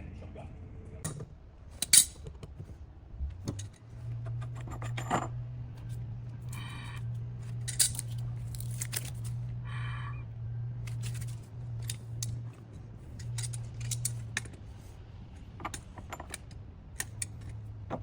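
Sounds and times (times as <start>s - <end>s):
steady low hum: 0.0s - 18.0s
light metal clinking: 7.5s - 9.4s, 13.1s - 14.6s.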